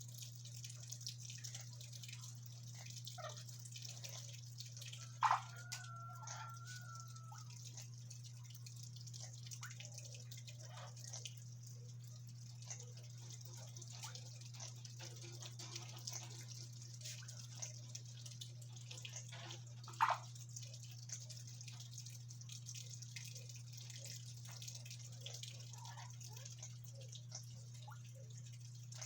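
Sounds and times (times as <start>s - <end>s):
parrots clicking and ticking: 1.5s - 7.9s, 12.6s - 20.3s.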